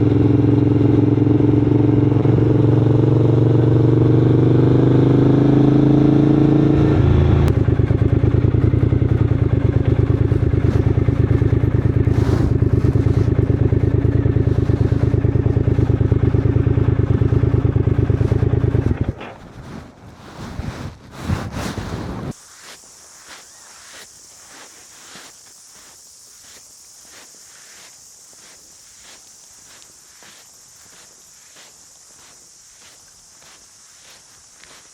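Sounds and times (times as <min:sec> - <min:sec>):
motorcycle engine idling: 0:00.0 - 0:04.9, 0:06.9 - 0:19.3.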